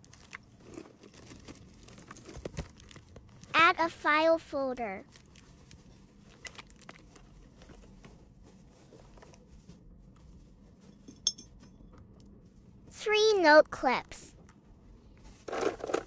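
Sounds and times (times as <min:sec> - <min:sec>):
sharp clink: 0:11.1 - 0:11.6.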